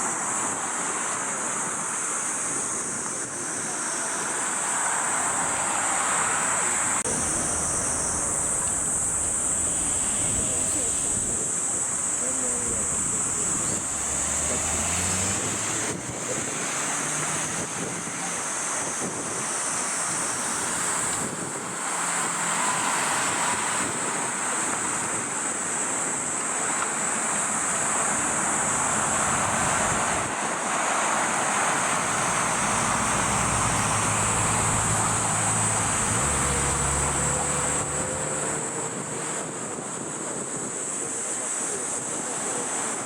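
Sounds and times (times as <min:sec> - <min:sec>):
jet engines roaring: 0:04.2 - 0:26.3, 0:27.6 - 0:41.0.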